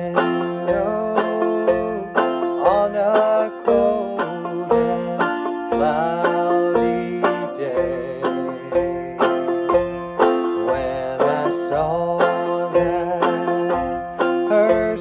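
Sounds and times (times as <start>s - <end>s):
banjo picking and strumming: 0.0s - 15.0s.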